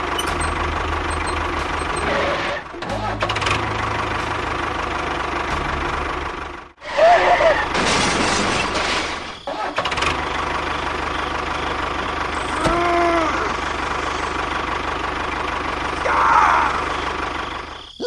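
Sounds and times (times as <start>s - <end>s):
miniature tractor engine running: 9.9s - 16.0s.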